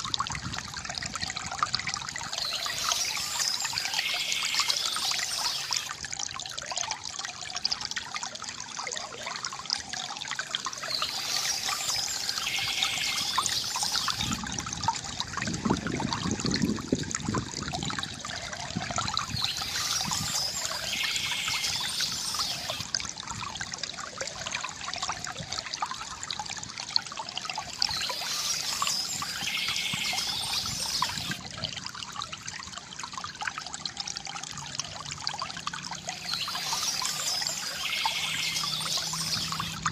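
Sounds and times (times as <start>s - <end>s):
river water trickling and gurgling: 0.0s - 39.9s
birds chirping: 2.3s - 6.0s, 10.8s - 14.4s, 19.2s - 22.9s, 27.7s - 31.4s, 36.1s - 39.9s.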